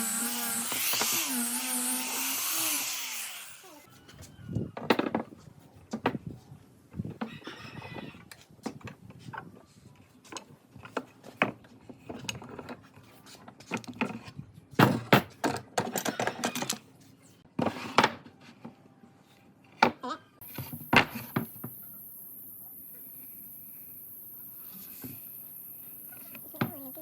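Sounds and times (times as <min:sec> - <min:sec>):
wood pieces and tools clattering: 0:10.2 - 0:16.9.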